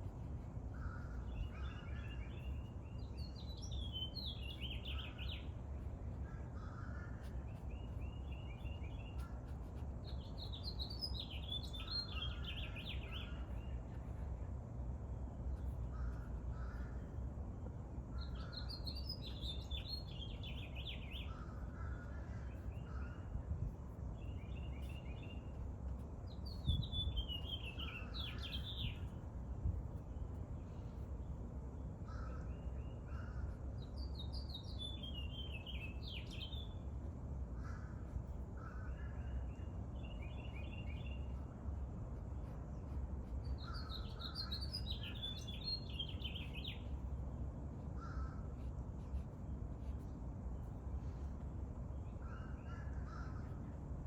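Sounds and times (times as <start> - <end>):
bird trills and chirps: 6.6 - 13.8, 26.3 - 29.2, 43.4 - 47.0
songbirds whistling: 26.4 - 29.2, 33.9 - 36.8, 43.4 - 46.9.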